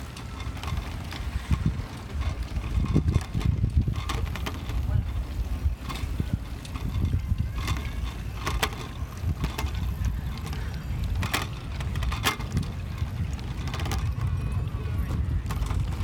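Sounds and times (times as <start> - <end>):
bike clicks and rattles: 0.0 - 16.0
road noise: 0.0 - 16.0
wind rumble on microphone: 0.0 - 16.0.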